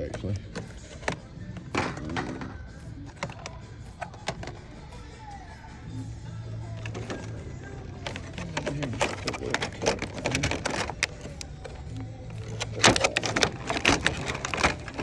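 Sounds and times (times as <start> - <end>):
toy cars clicking and clattering: 0.0 - 5.1, 6.6 - 15.0.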